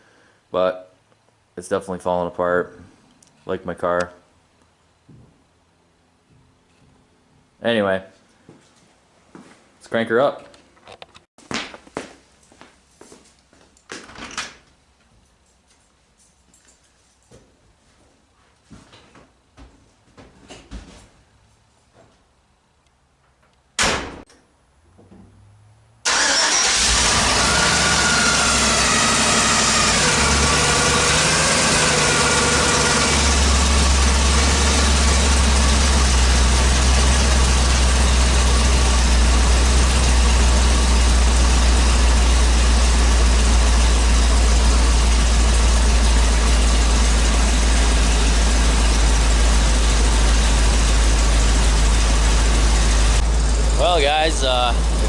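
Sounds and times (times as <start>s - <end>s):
truck engine starting and idling: 26.0s - 55.0s.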